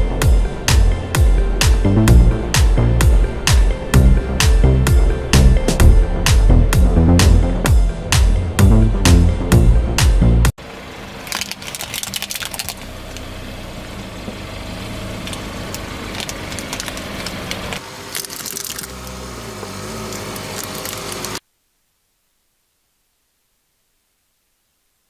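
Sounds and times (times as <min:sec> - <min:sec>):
electronic music: 0:00.0 - 0:10.5
car engine running: 0:00.0 - 0:21.4
objects crunching under tyres: 0:11.1 - 0:21.4.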